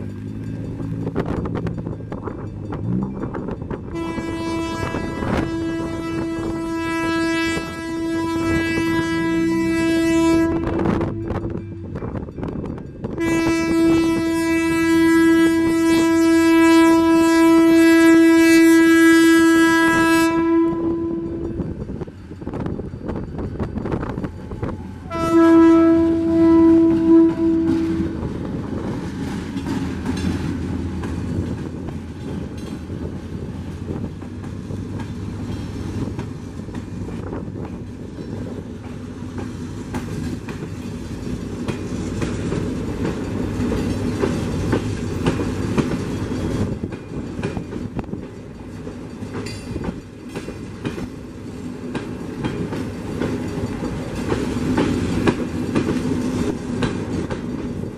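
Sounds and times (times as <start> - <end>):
locomotive horn blast: 3.9 - 12.0, 13.1 - 21.8, 25.0 - 28.4
wheels clacking over rail joints: 20.7 - 57.9.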